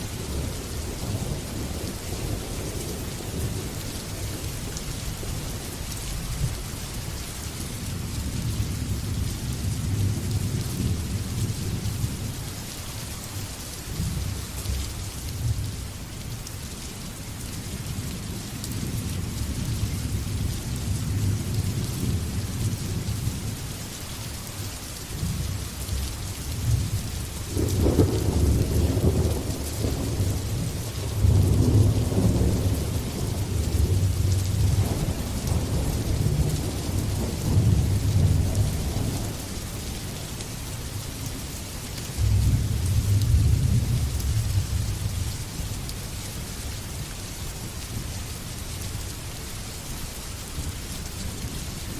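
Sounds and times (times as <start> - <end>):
rain hissing: 0.0 - 51.9
thunder rumbling: 27.5 - 39.6, 42.2 - 45.2.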